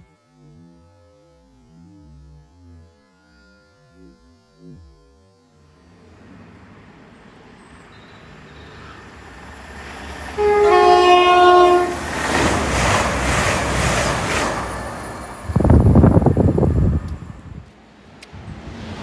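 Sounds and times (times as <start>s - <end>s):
train rushing past: 6.1s - 19.0s
wheels clattering on rails: 7.5s - 17.6s
train two-tone horn: 7.9s - 9.3s, 10.2s - 12.1s.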